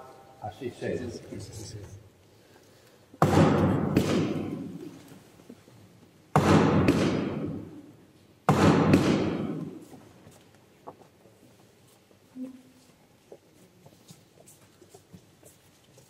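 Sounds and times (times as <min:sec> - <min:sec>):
sharp knocks in reverberant church: 0:03.2 - 0:05.0, 0:06.3 - 0:10.1.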